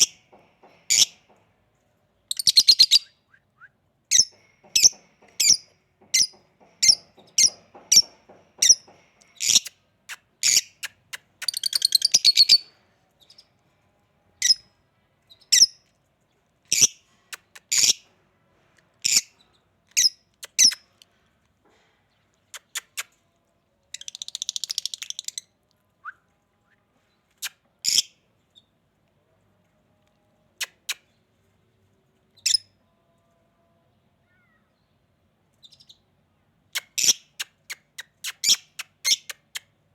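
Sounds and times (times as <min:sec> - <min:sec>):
parrots chirping: 0:02.3 - 0:03.1, 0:04.1 - 0:12.7, 0:36.8 - 0:39.6
parrot chattering trill: 0:20.0 - 0:20.9, 0:22.5 - 0:23.2, 0:30.6 - 0:31.1, 0:36.8 - 0:39.7.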